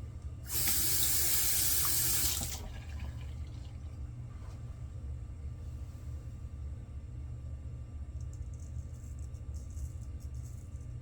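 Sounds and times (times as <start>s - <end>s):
low steady hum: 0.0s - 11.0s
water running from sink tap: 0.5s - 3.8s.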